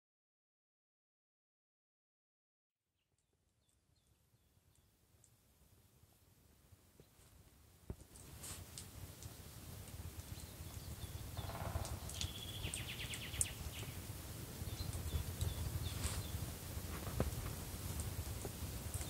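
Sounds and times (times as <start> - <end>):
birds chirping and calling: 10.4 - 14.0.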